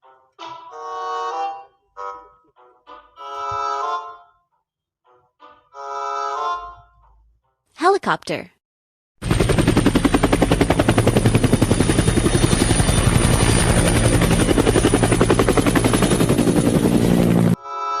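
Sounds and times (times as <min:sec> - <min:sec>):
helicopter rotor blades chopping: 0:09.2 - 0:17.6.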